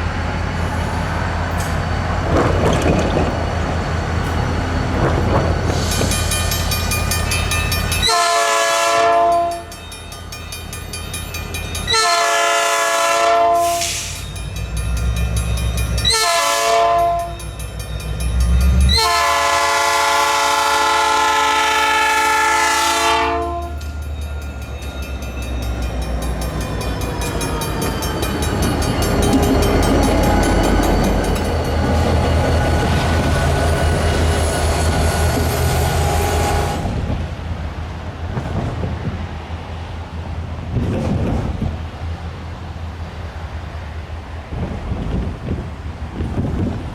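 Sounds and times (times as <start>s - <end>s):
train rolling past rumbling: 0.0s - 46.9s
locomotive air horn blasts: 8.0s - 9.7s, 11.9s - 14.2s, 16.0s - 17.4s, 18.9s - 23.8s.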